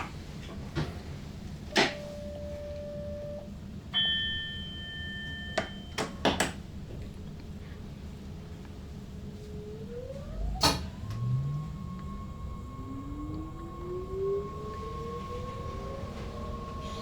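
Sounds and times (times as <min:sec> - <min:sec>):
ringing tone: 0:04.0 - 0:06.2
low hum: 0:07.0 - 0:17.0.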